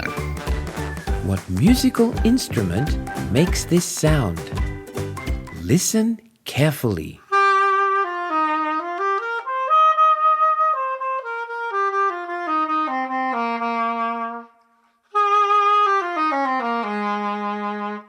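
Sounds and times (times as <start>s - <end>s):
solo clarinet melody: 7.3s - 18.0s.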